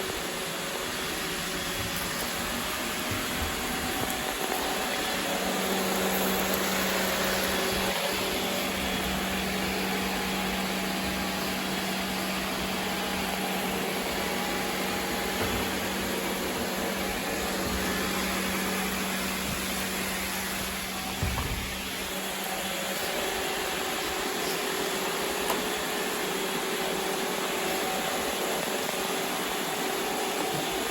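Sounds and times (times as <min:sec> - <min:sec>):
robot vacuum whirring: 0:00.0 - 0:11.4
brief thump: 0:21.1 - 0:21.8.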